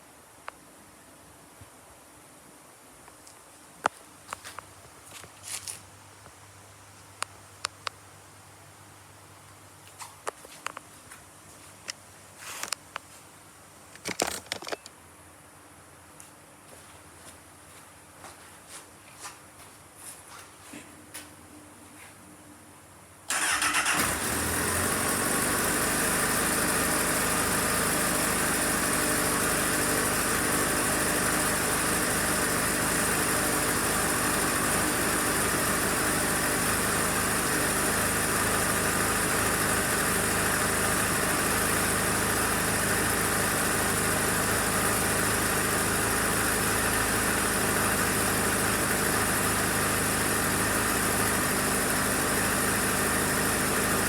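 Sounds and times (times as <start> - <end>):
motorcycle engine starting and idling: 23.3 - 54.0.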